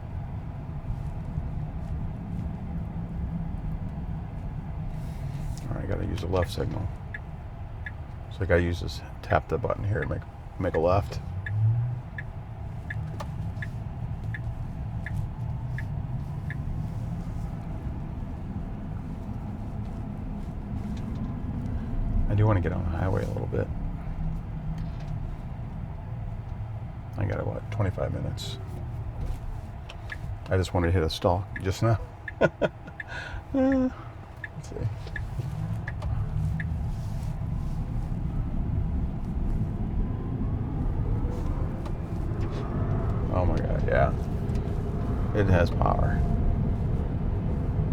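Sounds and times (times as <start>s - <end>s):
low road rumble in cabin: 0.0s - 47.9s
turn signal ticking: 0.1s - 47.9s
light tick: 31.5s - 37.4s.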